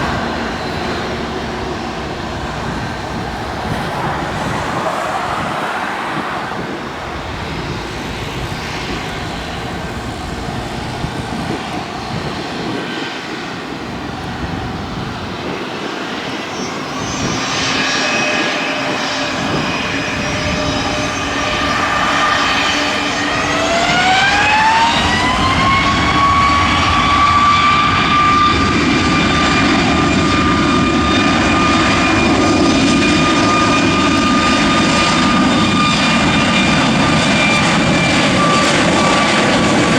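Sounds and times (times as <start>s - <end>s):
jet engine roar: 0.0s - 39.9s
jet engine whine: 0.0s - 39.9s.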